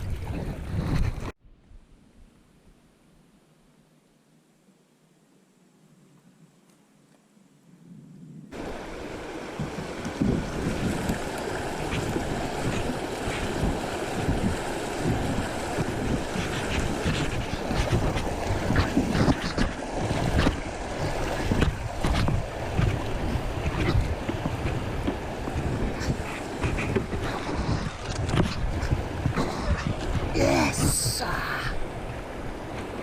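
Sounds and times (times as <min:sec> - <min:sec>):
wind buffeting microphone: 0:08.1 - 0:33.0
river water rushing: 0:08.6 - 0:33.0.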